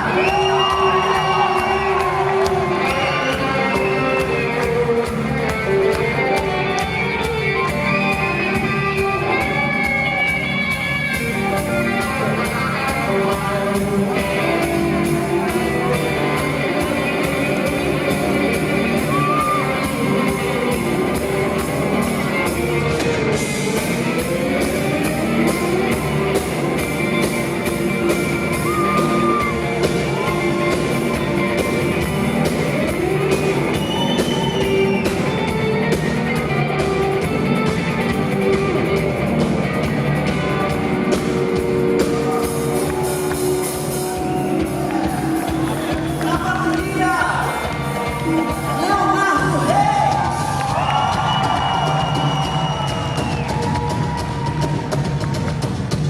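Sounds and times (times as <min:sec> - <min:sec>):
audience shouting and whooping: 0:00.0 - 0:05.1, 0:16.0 - 0:20.7, 0:28.1 - 0:31.6, 0:40.3 - 0:56.0
live band with guitar and singing: 0:00.0 - 0:56.0.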